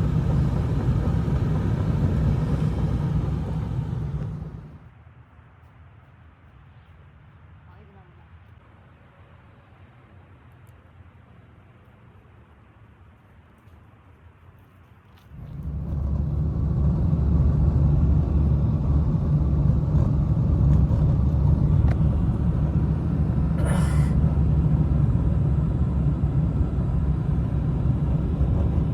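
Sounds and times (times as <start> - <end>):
loud low rumbling: 0.0 - 4.8, 15.3 - 28.9.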